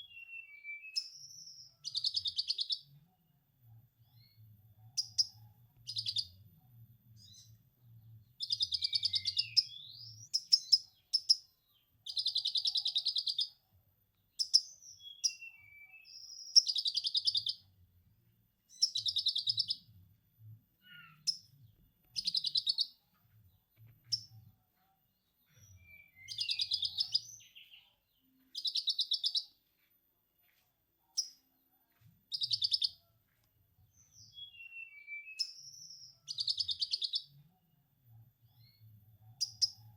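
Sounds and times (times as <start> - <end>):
songbird chattering: 22.2 - 22.9, 28.6 - 29.5.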